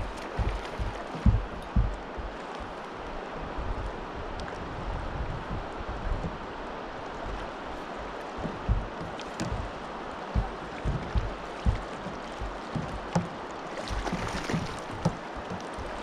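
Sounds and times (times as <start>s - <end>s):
low thumps: 0.0s - 2.8s, 7.1s - 16.0s
river water rushing: 0.0s - 16.0s
wind buffeting microphone: 0.0s - 16.0s.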